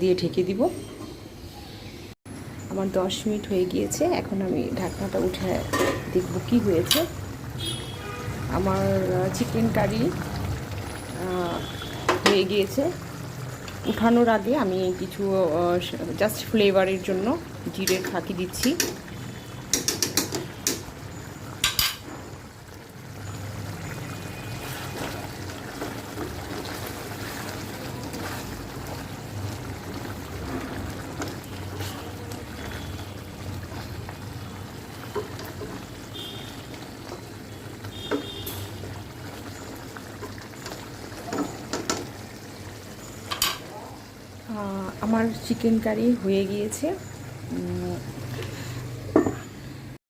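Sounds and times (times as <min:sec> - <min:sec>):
curry bubbling in a pot: 0:04.3 - 0:49.8
metal clinks against pot: 0:05.6 - 0:06.2, 0:21.6 - 0:22.1, 0:43.3 - 0:43.7.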